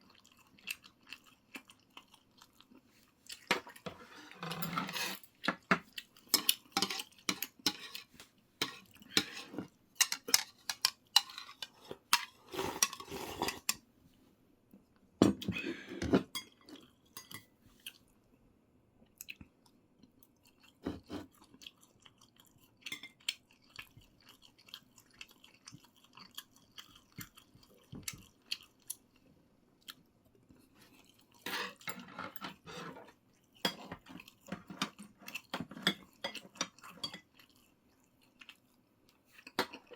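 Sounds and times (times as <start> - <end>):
person chewing: 0.0 - 3.8, 19.1 - 31.4, 33.4 - 39.9.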